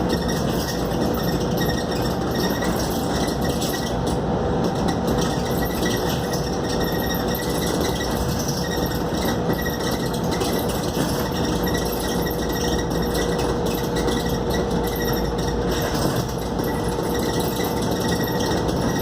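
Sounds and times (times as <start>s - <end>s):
bus engine and road noise: 0.0s - 19.0s
constant whine: 0.0s - 19.0s.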